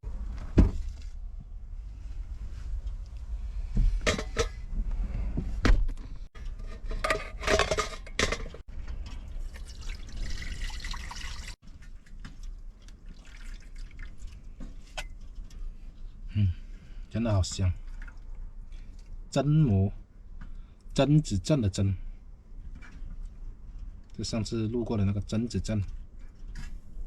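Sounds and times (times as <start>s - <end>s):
water pouring and splashing: 8.9s - 14.9s, 17.8s - 19.2s.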